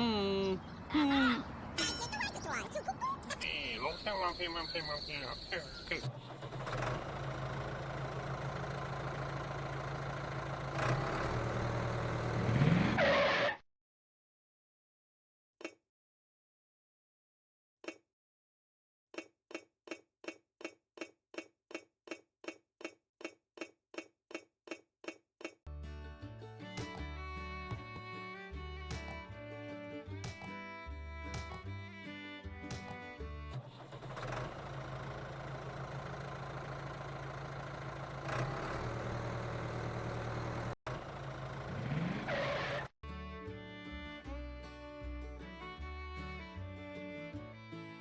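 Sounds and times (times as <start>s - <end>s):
small engine revving: 6.0s - 13.6s, 33.6s - 42.9s.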